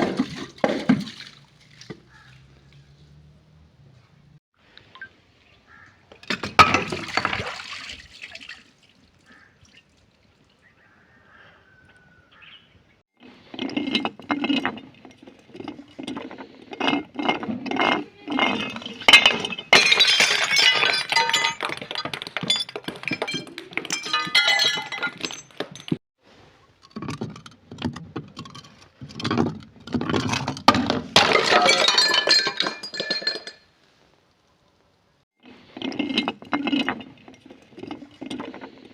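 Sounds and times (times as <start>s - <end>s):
glass bottles crushed and shattering: 6.2s - 8.0s, 16.8s - 26.0s, 28.4s - 33.7s
glass pieces clinking: 18.3s - 26.0s, 31.2s - 33.7s.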